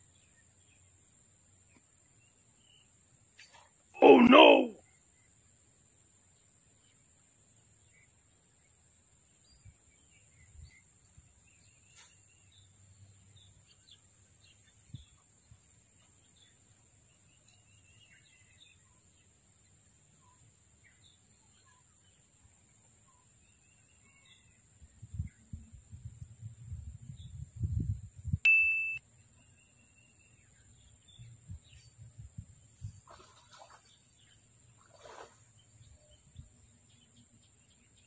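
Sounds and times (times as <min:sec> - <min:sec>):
faint bird chirps: 0:20.2 - 0:22.2, 0:23.0 - 0:25.6, 0:28.5 - 0:38.0.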